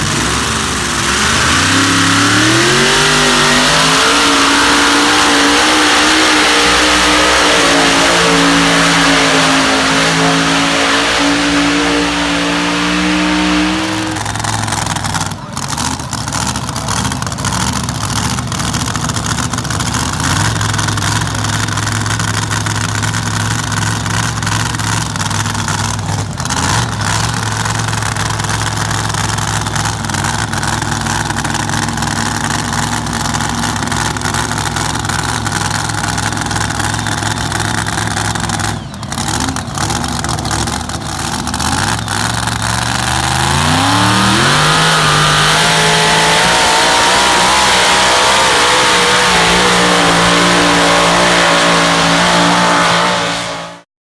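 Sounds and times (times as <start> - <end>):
vehicle engine running hard: 0.0 - 53.9.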